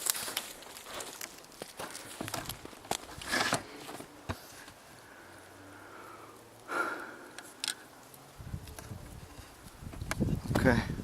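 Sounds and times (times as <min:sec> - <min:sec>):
person sniffing and breathing: 0:03.3 - 0:07.7.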